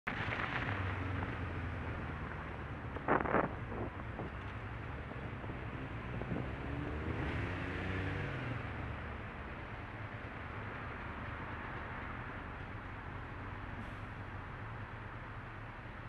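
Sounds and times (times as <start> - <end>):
road traffic rumble: 0.1 - 16.0
vehicle engine revving: 0.2 - 9.5.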